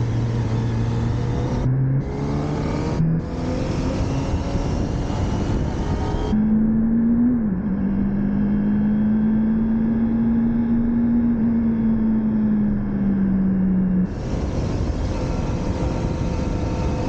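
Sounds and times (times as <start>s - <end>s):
rushing wind noise: 0.0s - 7.8s, 14.1s - 17.0s
motorcycle engine at high revs: 0.0s - 17.0s.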